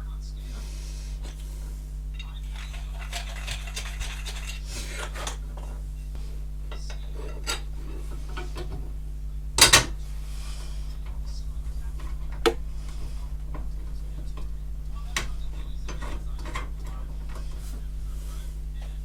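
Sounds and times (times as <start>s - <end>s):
steady low hum: 0.0s - 19.0s
metal parts clinking and tapping: 2.2s - 5.7s, 6.7s - 8.8s, 9.6s - 10.0s, 15.1s - 17.5s.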